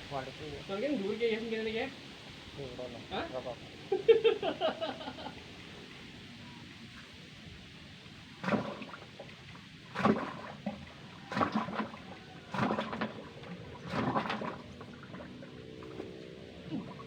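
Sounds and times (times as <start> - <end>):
muddy water gushing and splashing: 5.4 - 17.0.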